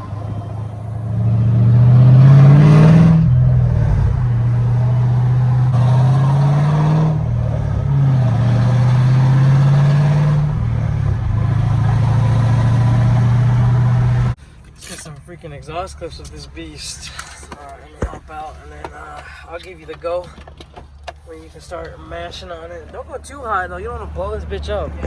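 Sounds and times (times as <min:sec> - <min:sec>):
car engine accelerating loudly: 0:00.0 - 0:14.4, 0:21.8 - 0:25.0.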